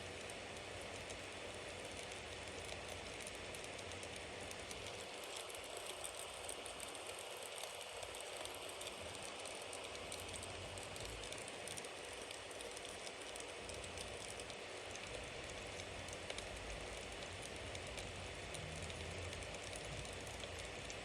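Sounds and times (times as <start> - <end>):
bonfire flames hissing: 0.2 - 21.0
wood crackling and popping: 0.2 - 21.0.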